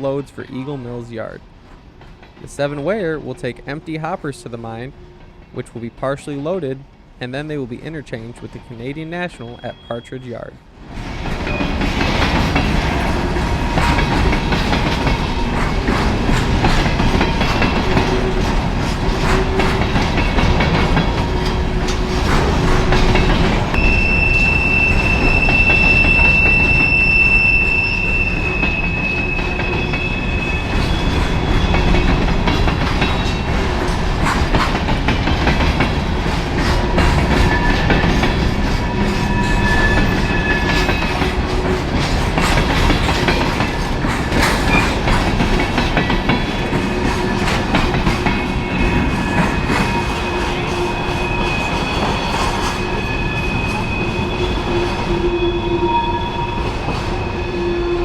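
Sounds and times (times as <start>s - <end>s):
train wheel squeal: 9.4s - 10.2s, 11.2s - 32.3s, 36.1s - 41.8s, 42.4s - 45.0s, 46.3s - 58.0s
train wheels clicking over joints: 11.0s - 55.4s.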